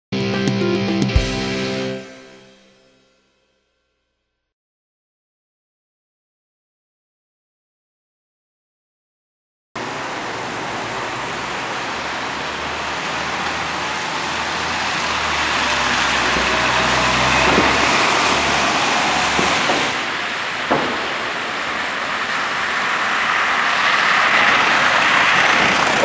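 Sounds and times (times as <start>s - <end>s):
road noise hiss: 9.8s - 26.0s
vehicle engine approaching: 9.8s - 26.0s.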